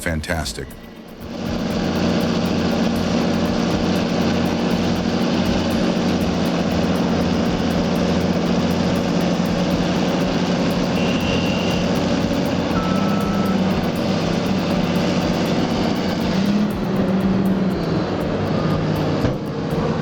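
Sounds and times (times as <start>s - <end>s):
heavy diesel engine running: 0.0s - 20.0s
short high-pitched beep: 10.9s - 12.0s, 12.7s - 13.8s.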